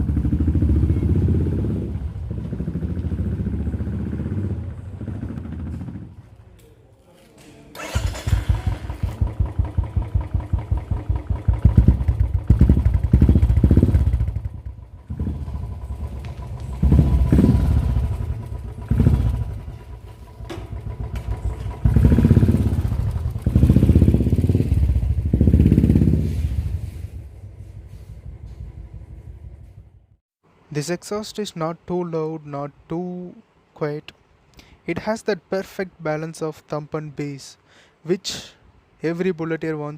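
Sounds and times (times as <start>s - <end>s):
motorcycle engine idling and revving: 0.0s - 6.4s, 7.8s - 30.2s.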